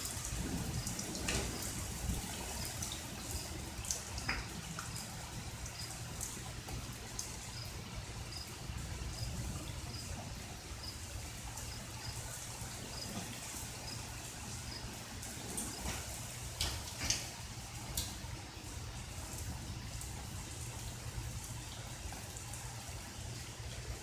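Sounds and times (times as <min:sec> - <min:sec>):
sharp drips: 0:00.0 - 0:24.0
water trickling and dripping: 0:00.0 - 0:24.0
cricket chirping: 0:02.5 - 0:03.6, 0:04.9 - 0:06.3, 0:07.1 - 0:15.9.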